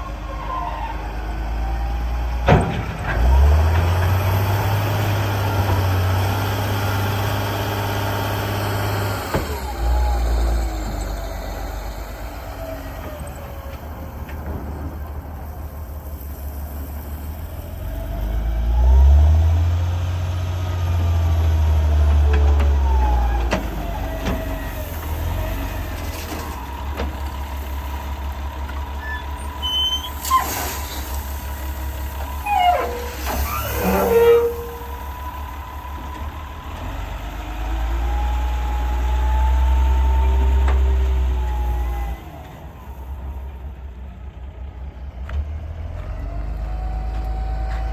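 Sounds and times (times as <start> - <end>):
diesel engine rumble: 0.0 - 47.9
machine squeals and knocks: 29.0 - 30.6, 32.2 - 35.5
gliding hydraulic whines: 31.7 - 43.7.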